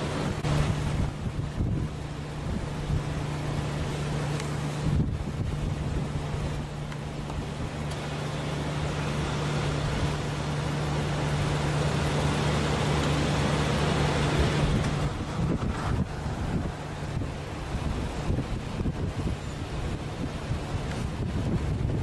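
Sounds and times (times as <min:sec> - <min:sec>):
rushing noise: 0:00.0 - 0:22.0
vehicle engine running: 0:00.0 - 0:22.0.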